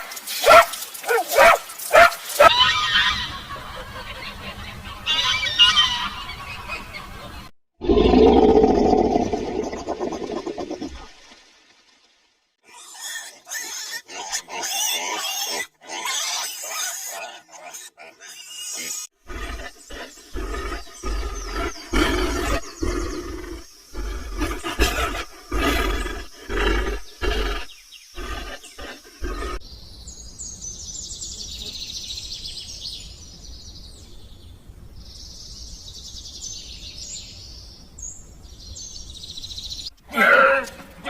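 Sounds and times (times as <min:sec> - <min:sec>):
animal roaring or growling: 0:07.8 - 0:11.1, 0:19.3 - 0:29.6.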